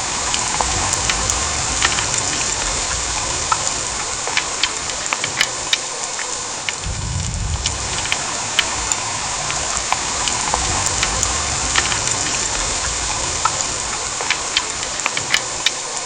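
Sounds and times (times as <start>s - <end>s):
low rumble: 0.0s - 4.6s, 6.8s - 14.5s
heavy rain hiss: 0.0s - 16.0s
raindrops clicking: 0.0s - 16.0s.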